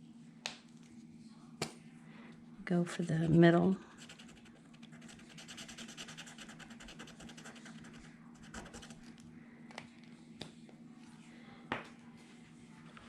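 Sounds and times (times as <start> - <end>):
marker scratching on wood: 4.0 - 9.0.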